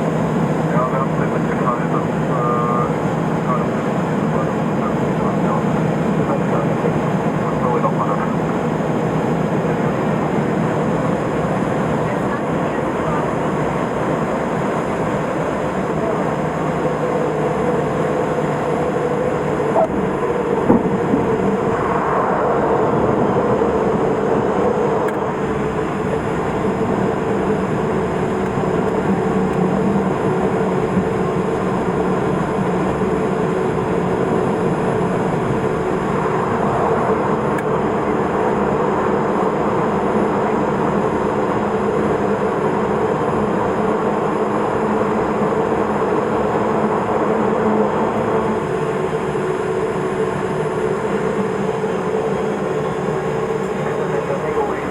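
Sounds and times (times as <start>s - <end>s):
constant hum: 0.0s - 54.9s
turboprop engine cabin noise: 0.0s - 54.9s
light knocks: 20.6s - 21.3s.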